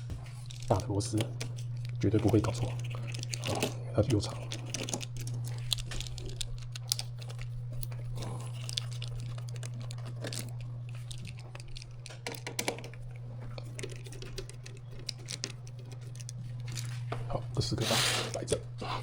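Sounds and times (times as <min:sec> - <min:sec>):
steady low hum: 0:00.0 - 0:19.0
screws clicking and tapping: 0:08.6 - 0:16.8.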